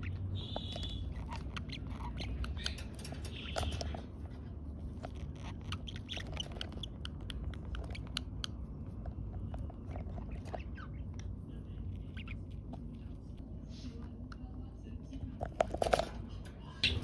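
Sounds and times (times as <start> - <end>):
bird chirps: 0.0 - 4.1
birds pecking clicks: 0.1 - 4.1.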